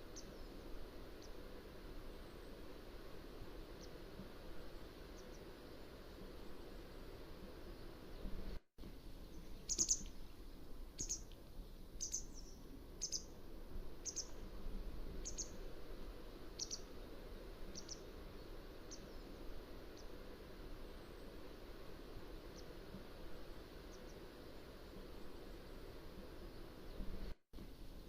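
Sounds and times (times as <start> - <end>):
bird giving high sharp calls: 9.7 - 10.1.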